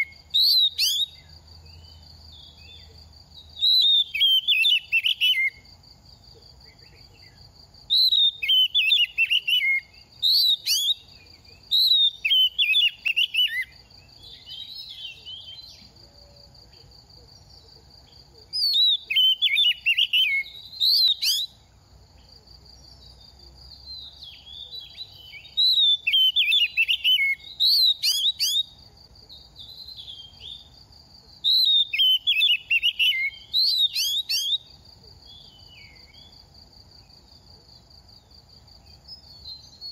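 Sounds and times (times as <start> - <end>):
bird singing whistled phrases: 0.0 - 1.3, 3.6 - 5.6, 6.8 - 15.8, 18.5 - 21.6, 23.9 - 28.8, 29.6 - 30.7, 31.4 - 34.7.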